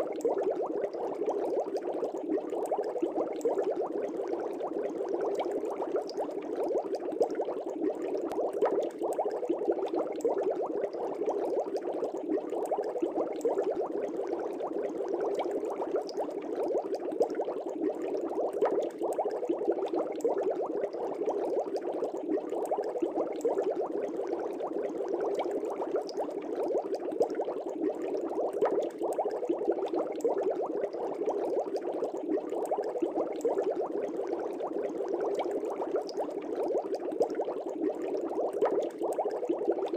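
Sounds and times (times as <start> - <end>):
aquarium air bubbling: 0.0 - 39.9.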